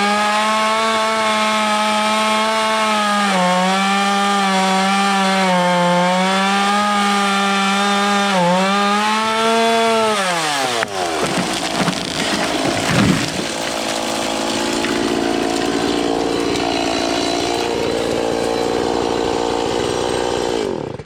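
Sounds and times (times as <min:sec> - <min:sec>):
chainsaw cutting tree trunk: 0:00.0 - 0:21.0.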